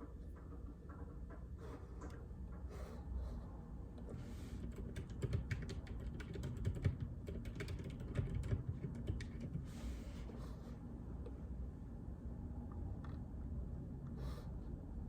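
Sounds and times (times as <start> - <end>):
dampened keyboard keystrokes: 4.6 - 9.7.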